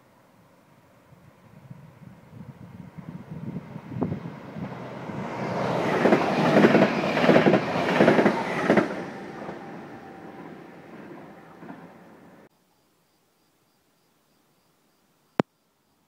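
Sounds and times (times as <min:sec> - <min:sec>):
electric train passing: 0:00.6 - 0:12.5
train wheels clattering: 0:05.8 - 0:09.7.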